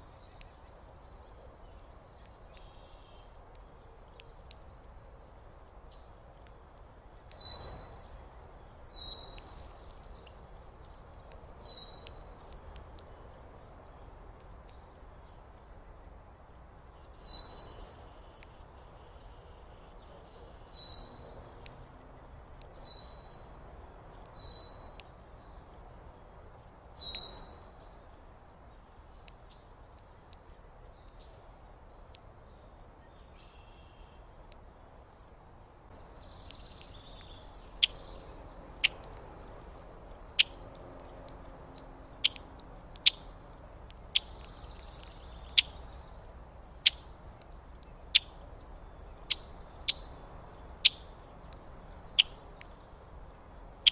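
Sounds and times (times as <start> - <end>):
high bird twittering: 7.3 - 8.0, 36.1 - 41.3, 42.0 - 47.1, 47.8 - 50.2, 50.8 - 53.0.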